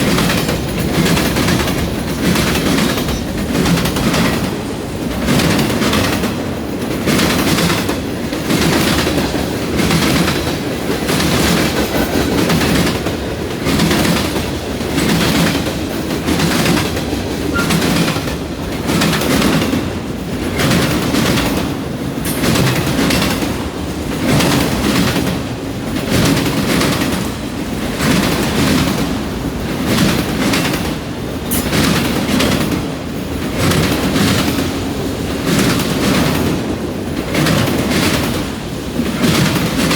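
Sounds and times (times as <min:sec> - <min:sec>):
freight train rumble: 0:00.0 - 0:39.9
train wheels clacking over rail joints: 0:00.0 - 0:39.9.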